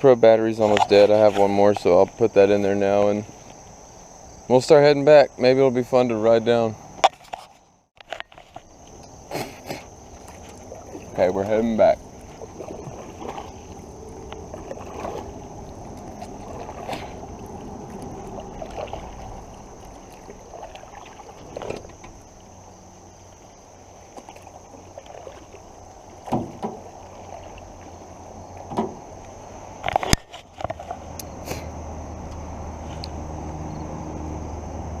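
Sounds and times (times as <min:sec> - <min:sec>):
water washing against canoe hull: 0:08.1 - 0:33.3
knocks against canoe: 0:26.2 - 0:26.9, 0:28.6 - 0:29.1.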